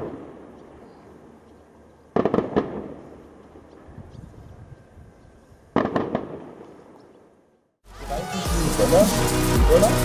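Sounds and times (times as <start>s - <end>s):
fireworks bangs echoing: 0.0s - 0.6s, 2.1s - 4.0s, 5.7s - 7.0s.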